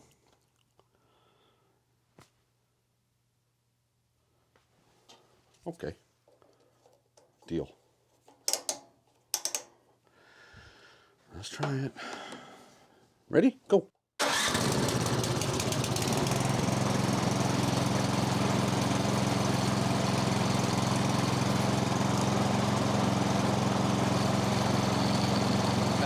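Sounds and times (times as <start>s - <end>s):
snowblower engine running: 14.2s - 26.0s.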